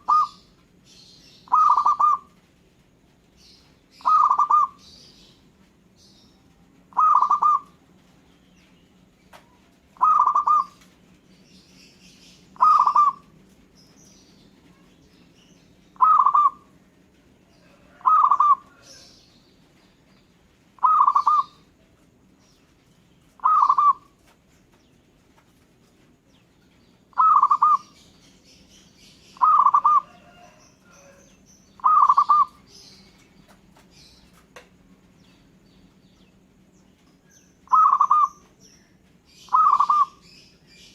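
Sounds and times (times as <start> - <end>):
dove cooing: 0.0 - 0.5, 1.4 - 2.4, 4.0 - 4.8, 6.9 - 8.1, 9.9 - 10.9, 12.5 - 13.3, 16.0 - 16.7, 17.6 - 19.1, 20.8 - 21.7, 23.4 - 24.3, 27.1 - 28.0, 29.4 - 32.7, 37.6 - 38.5, 39.4 - 40.4
faint bird chirps: 0.0 - 2.4, 3.4 - 16.8, 17.5 - 40.9.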